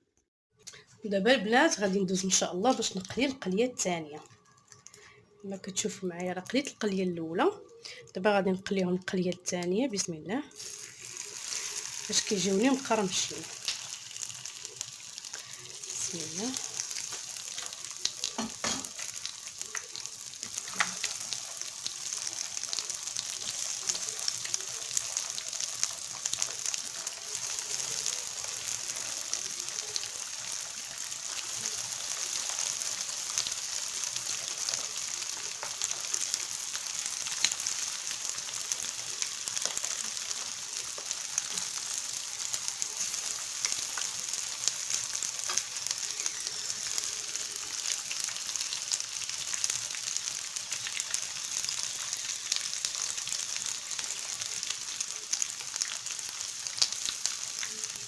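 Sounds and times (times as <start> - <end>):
spring rolls sizzling in oil: 10.5 - 58.0.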